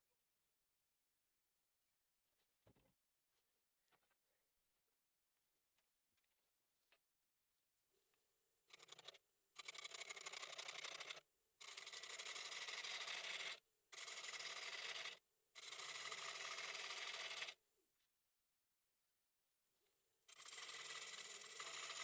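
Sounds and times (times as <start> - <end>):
turning tool cutting wood: 8.7 - 17.6, 20.3 - 22.0.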